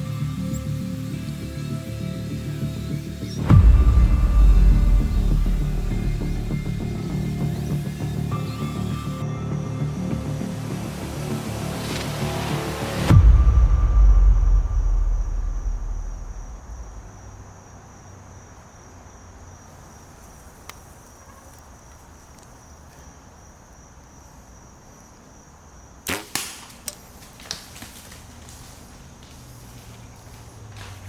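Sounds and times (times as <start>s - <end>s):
high insect trill: 0.0s - 13.2s, 14.4s - 31.0s
quiet clicks: 20.6s - 22.6s
bow shot snap: 26.0s - 27.6s.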